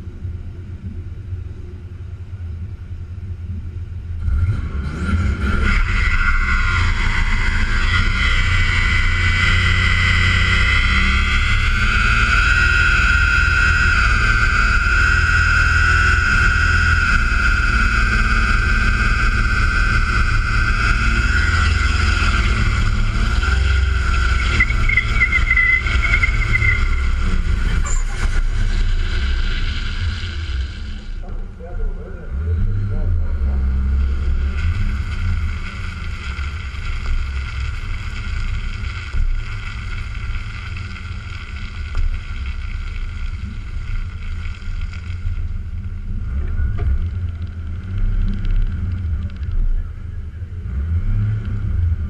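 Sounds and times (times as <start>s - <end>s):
engine at high revs: 4.2s - 31.2s, 32.1s - 45.3s, 50.6s - 52.0s.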